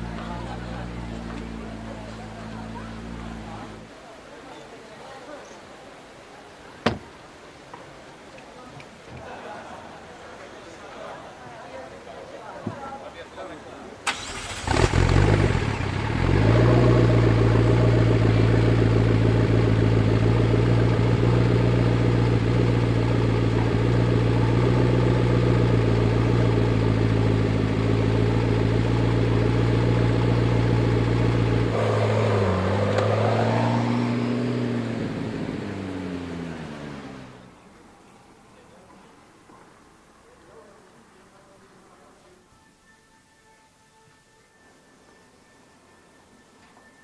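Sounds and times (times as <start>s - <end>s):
car engine starting and idling: 0.0s - 4.0s, 14.0s - 37.6s.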